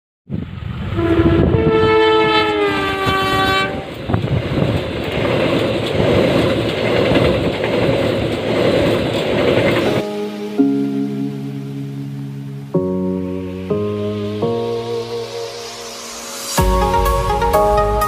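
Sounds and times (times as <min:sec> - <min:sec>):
train horn: 0:01.0 - 0:04.0
train wheels clattering on rails: 0:03.4 - 0:10.0.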